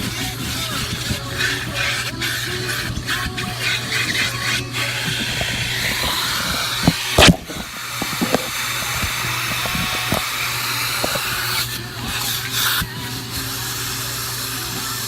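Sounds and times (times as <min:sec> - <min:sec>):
vacuum cleaner running: 0:00.0 - 0:15.0
nozzle knocking and clicking: 0:04.6 - 0:11.4.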